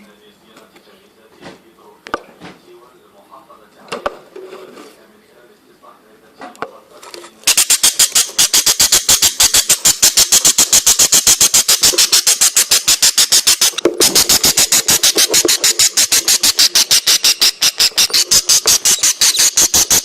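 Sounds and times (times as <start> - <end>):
budgerigar chick begging calls: 7.5 - 20.0
faint bird chatter: 7.5 - 20.0.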